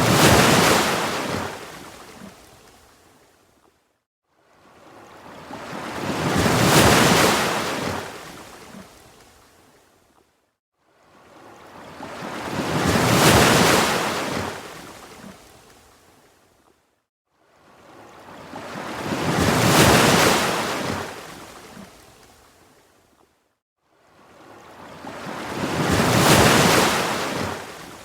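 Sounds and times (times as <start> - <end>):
ocean waves washing: 0.0 - 2.3, 5.2 - 8.2, 24.7 - 28.0.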